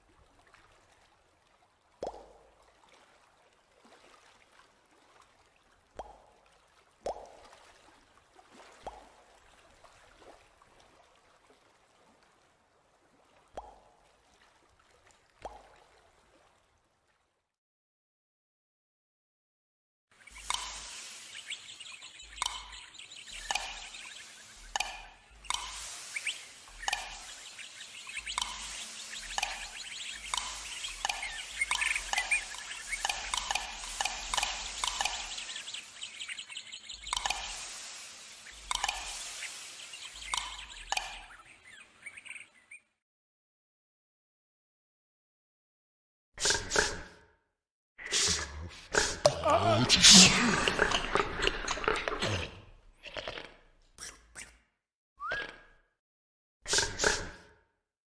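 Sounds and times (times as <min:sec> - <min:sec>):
soft watery wash: 0:00.0 - 0:17.6, 0:20.1 - 0:42.8
bubbly water plops: 0:01.9 - 0:04.3, 0:05.8 - 0:11.6, 0:13.2 - 0:16.4, 0:21.6 - 0:41.4.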